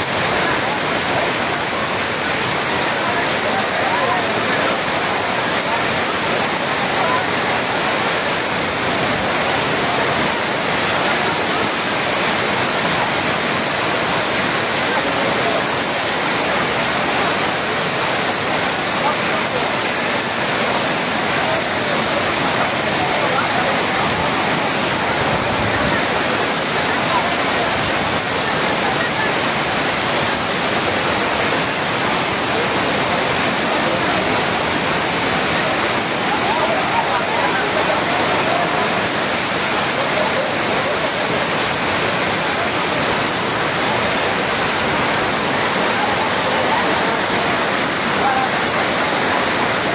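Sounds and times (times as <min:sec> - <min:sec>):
heavy rain pouring: 0:00.0 - 0:49.9.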